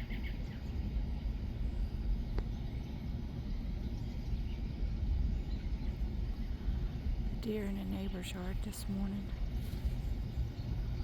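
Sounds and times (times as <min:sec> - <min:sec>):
faint bird chirps: 0:00.0 - 0:00.9
steady low rumble: 0:00.0 - 0:11.0.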